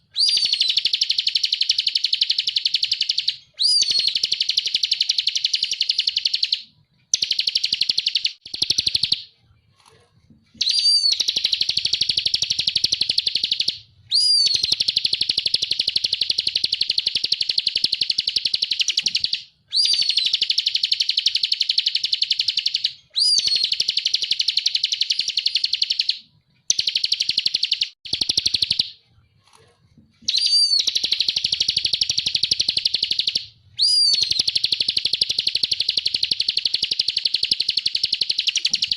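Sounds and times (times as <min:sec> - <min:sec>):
bird slurred whistle: 0:00.1 - 0:06.6, 0:10.6 - 0:26.1, 0:30.3 - 0:38.9.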